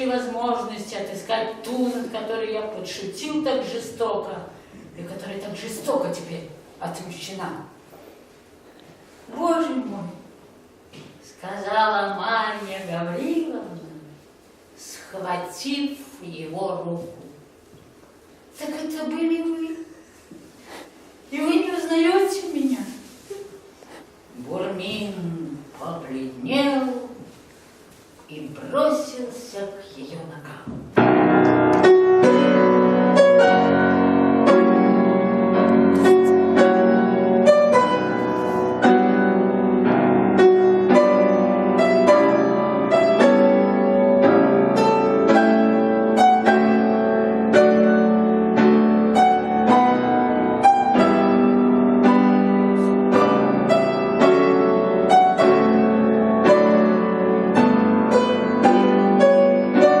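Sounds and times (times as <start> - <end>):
person reading aloud: 0.0 - 7.8, 9.3 - 10.3, 11.2 - 14.2, 14.8 - 17.5, 18.6 - 20.0, 21.3 - 23.5, 24.4 - 27.3, 28.3 - 30.9
piano music: 31.0 - 60.0.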